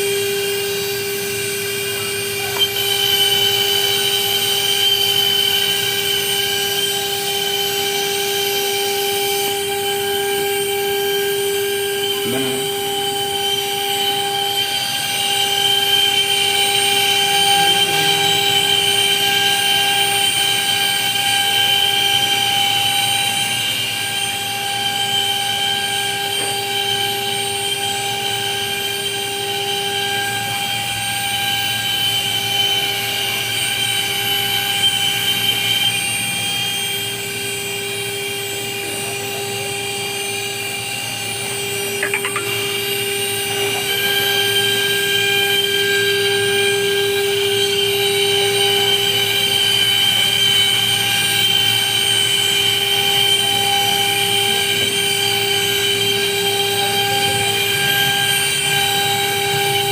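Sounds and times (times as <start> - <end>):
machine spindle whining: 0.0 - 36.3.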